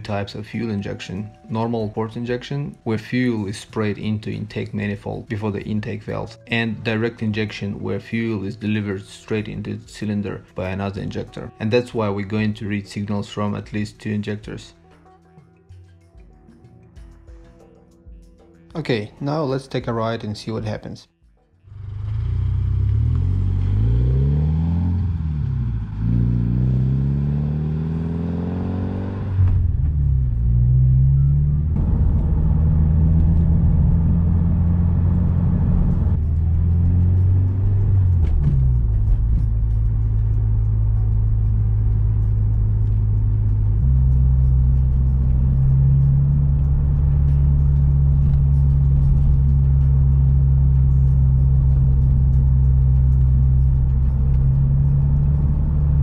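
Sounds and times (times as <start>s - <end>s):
car engine accelerating and coasting: 21.7s - 56.0s.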